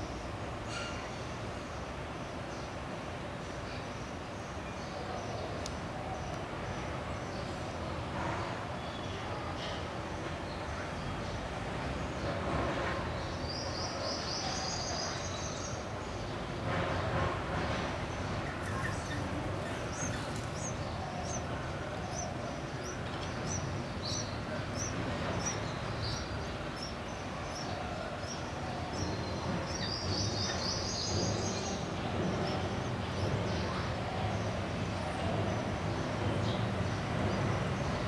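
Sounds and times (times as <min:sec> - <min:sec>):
small birds chirping: 0:10.5 - 0:38.0.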